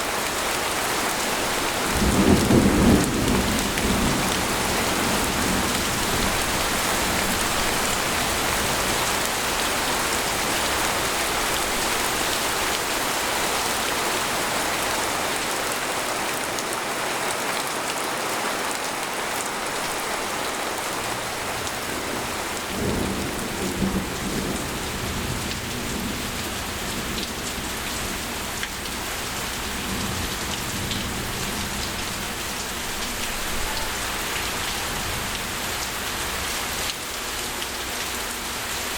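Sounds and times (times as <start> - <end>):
heavy rain on a tent: 0.0 - 38.9
low rumble of thunder: 1.7 - 9.2, 21.7 - 28.6.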